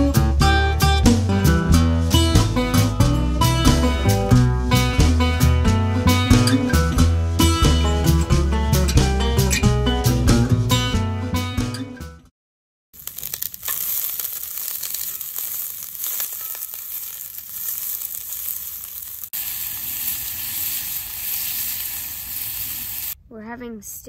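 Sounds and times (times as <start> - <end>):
acoustic guitar music: 0.0 - 12.2
food sizzling in skillet: 13.0 - 23.2
wooden spoon stirring: 13.0 - 23.2.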